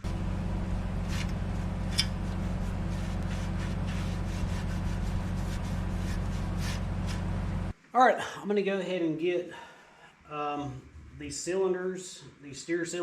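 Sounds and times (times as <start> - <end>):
machine humming: 0.0 - 7.8.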